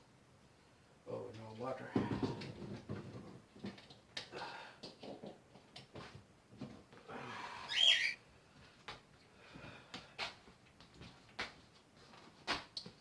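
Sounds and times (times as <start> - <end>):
cockatiel whistled call: 7.7 - 8.2.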